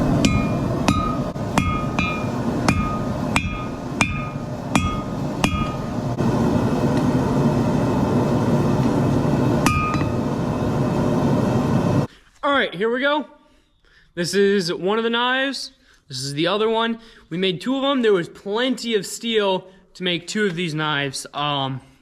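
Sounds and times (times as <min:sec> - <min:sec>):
hammer striking steel on anvil: 0:00.0 - 0:06.1, 0:09.6 - 0:10.3
steady rushing noise: 0:00.0 - 0:12.1.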